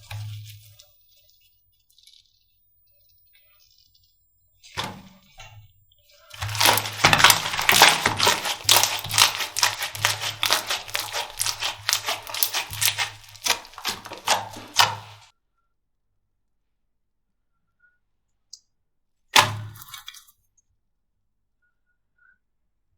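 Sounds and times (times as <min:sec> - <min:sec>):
slime squeezed by hand popping: 0:06.4 - 0:15.2.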